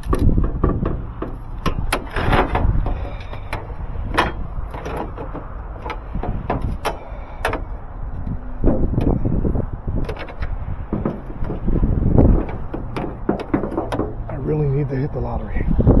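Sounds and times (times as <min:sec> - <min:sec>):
knocks and clunks: 0:00.0 - 0:14.8
low rumble: 0:00.0 - 0:16.0.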